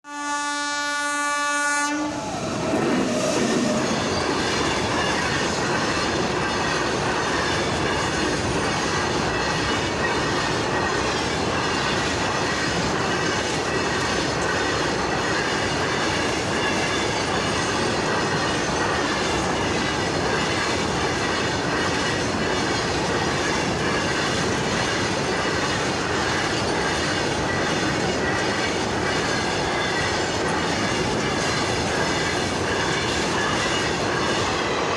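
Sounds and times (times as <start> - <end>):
train horn: 0.0 - 2.8
train running on rails: 0.1 - 34.9.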